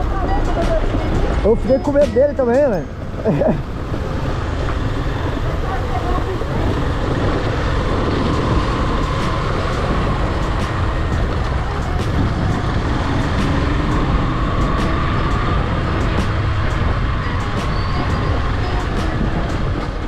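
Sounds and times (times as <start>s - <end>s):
road noise: 0.0s - 20.0s
wind rush over microphone: 0.0s - 20.0s
motorcycle engine: 2.6s - 20.0s.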